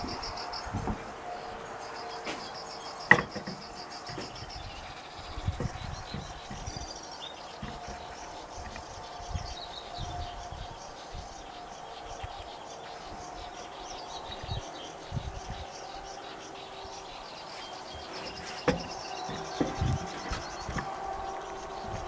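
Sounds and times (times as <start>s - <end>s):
wind thumps on microphone: 0.0s - 1.1s, 4.1s - 6.9s, 18.3s - 20.9s
small birds chirping: 0.0s - 22.0s
steady insect buzz: 0.0s - 22.0s.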